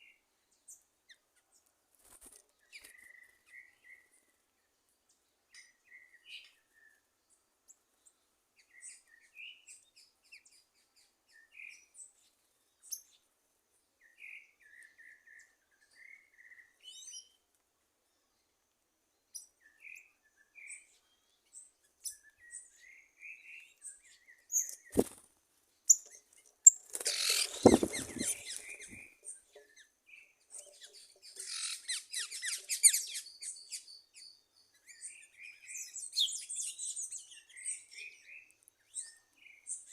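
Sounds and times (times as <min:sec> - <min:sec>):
wild birds chirping: 0:18.0 - 0:39.9
high twittering: 0:26.9 - 0:29.0
loud rustling thump: 0:27.6 - 0:29.0.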